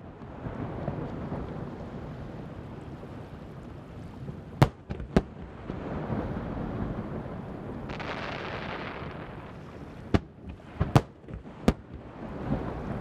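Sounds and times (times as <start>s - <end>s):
rumble of distant firework bursts: 0.0s - 13.0s
sharp firework bangs: 7.9s - 12.0s.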